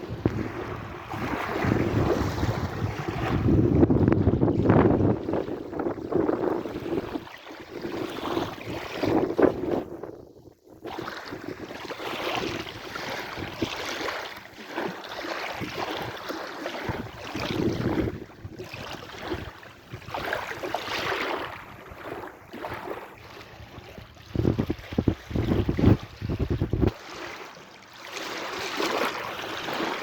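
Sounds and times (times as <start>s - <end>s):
sea waves washing in: 0.0s - 9.9s
wind buffeting microphone: 0.0s - 13.8s, 16.9s - 22.2s, 23.5s - 27.0s.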